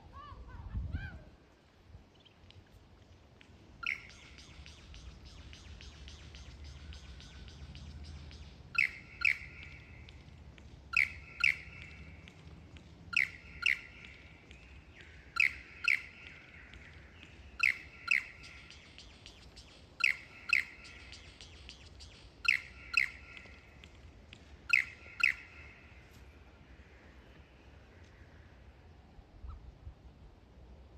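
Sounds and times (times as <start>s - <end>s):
lyrebird singing: 3.7s - 27.1s.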